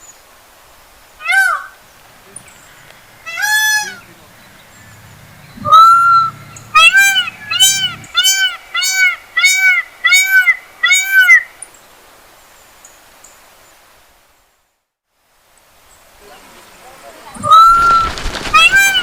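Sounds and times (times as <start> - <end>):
peacock calling: 1.2 - 11.6, 17.3 - 19.0.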